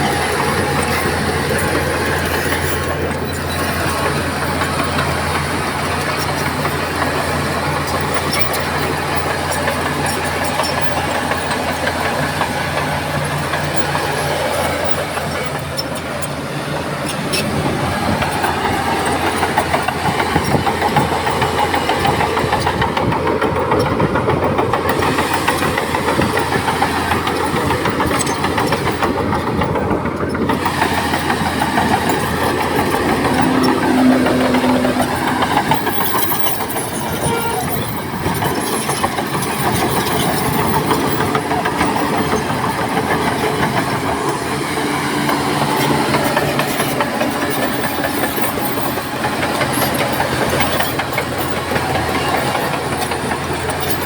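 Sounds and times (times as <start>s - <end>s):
bulldozer diesel engine: 0.0s - 54.0s.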